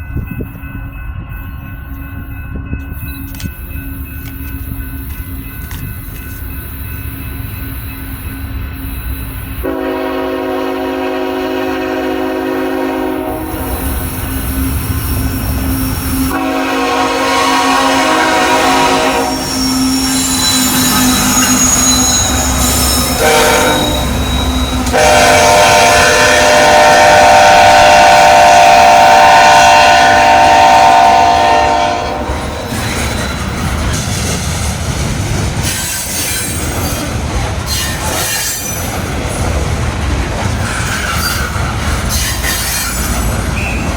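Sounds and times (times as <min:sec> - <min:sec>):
train wheels clattering and squealing: 0:02.8 - 0:09.6, 0:13.7 - 0:16.4, 0:18.9 - 0:25.0, 0:32.3 - 0:43.9
locomotive air horn blasts: 0:09.6 - 0:14.0, 0:16.2 - 0:32.6.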